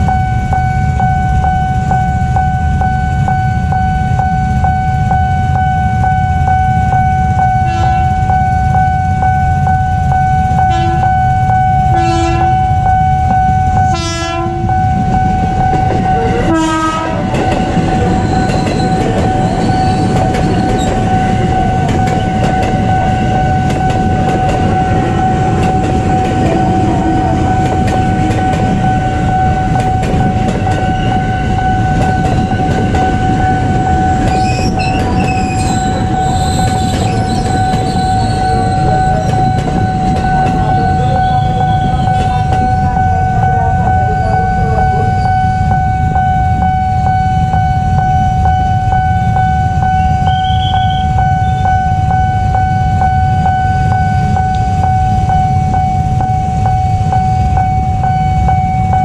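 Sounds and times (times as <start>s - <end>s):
crossing signal warning tone: 0.0s - 59.0s
train wheels rumbling over rails: 0.0s - 59.0s
train horn blasts: 7.4s - 9.7s, 10.5s - 17.6s, 48.9s - 54.0s.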